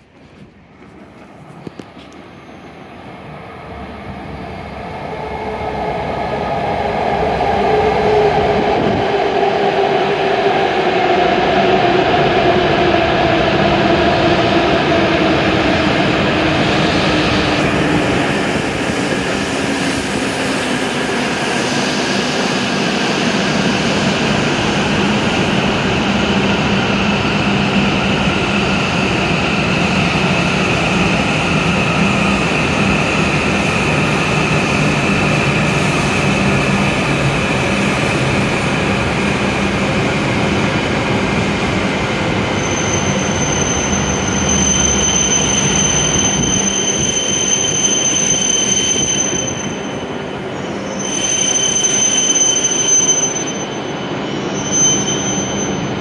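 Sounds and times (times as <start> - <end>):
high brake squeal: 2.2 - 2.9, 42.5 - 56.0.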